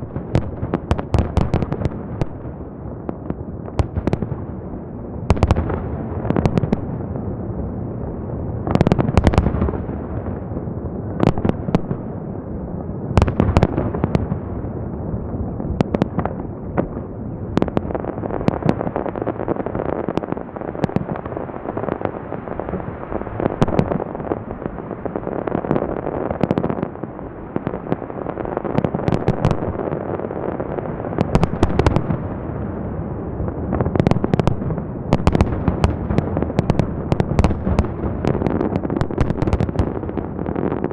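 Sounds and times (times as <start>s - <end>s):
fireworks bursting and crackling: 0.0s - 40.9s
fireworks sharp bangs: 33.3s - 40.9s.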